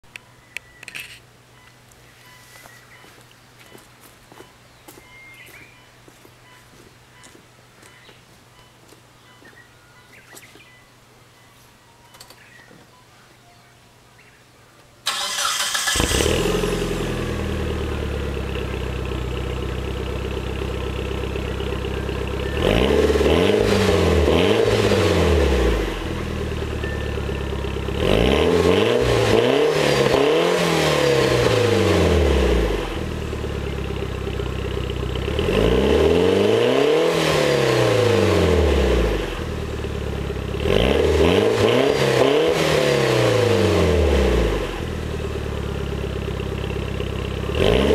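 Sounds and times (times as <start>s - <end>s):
car engine idling and revving: 15.1s - 47.9s.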